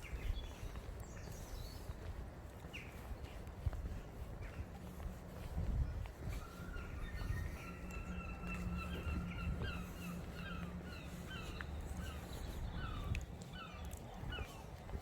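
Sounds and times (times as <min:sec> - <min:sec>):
bird calling: 0:06.4 - 0:14.6.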